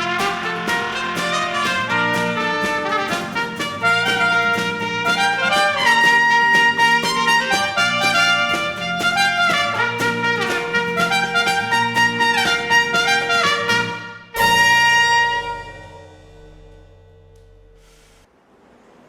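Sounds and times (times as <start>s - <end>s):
brass ensemble with trumpet: 0.0s - 17.0s.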